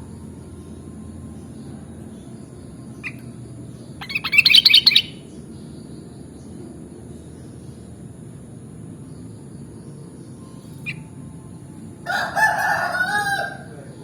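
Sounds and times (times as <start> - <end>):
steady low background noise: 0.0 - 14.0
bird calling: 3.0 - 5.3.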